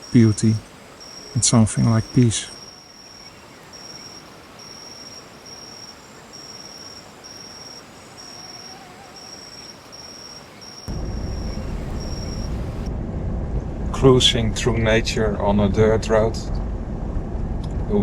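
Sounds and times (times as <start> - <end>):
insect chirping: 0.0 - 12.9
outdoor hiss: 0.0 - 12.9
vehicle driving on dirt road: 10.2 - 18.0.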